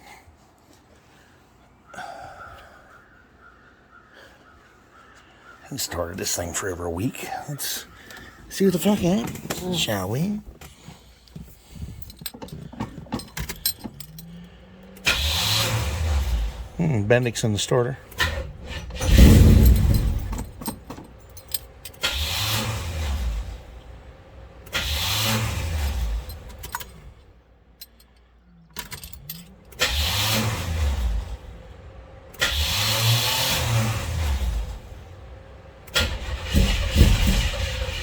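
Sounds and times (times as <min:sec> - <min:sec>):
engine cranking on starter: 0:07.2 - 0:27.3, 0:28.6 - 0:38.0.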